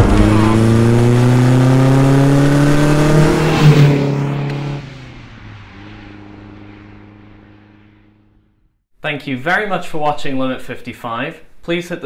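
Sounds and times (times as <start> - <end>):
car engine revving: 0.0 - 8.8.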